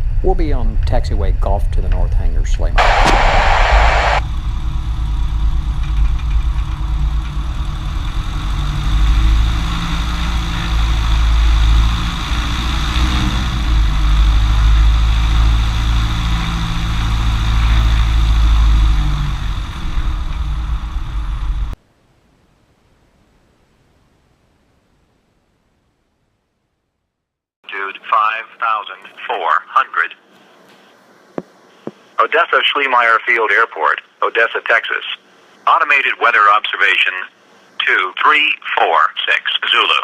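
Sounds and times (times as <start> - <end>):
light aircraft engine droning: 2.7 - 21.8.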